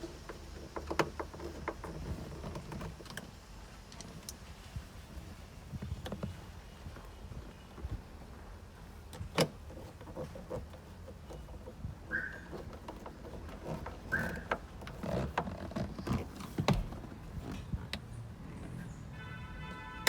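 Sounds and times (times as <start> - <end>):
short squeaks: 9.8 - 17.2.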